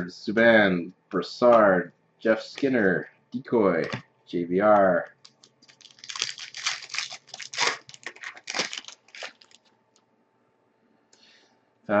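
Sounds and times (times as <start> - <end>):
card pack wrapper tearing: 5.2 - 9.7.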